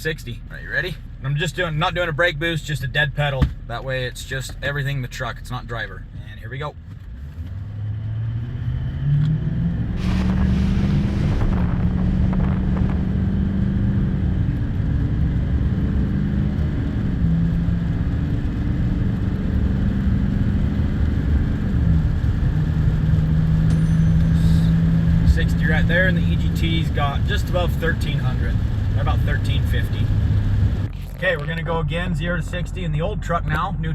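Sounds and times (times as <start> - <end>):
truck engine accelerating: 6.8 - 33.9.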